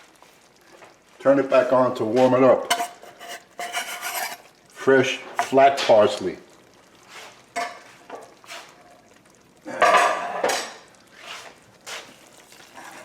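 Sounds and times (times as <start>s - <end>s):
metal utensil scraping a cooking pot: 2.6s - 4.6s, 5.4s - 5.6s, 12.6s - 13.0s.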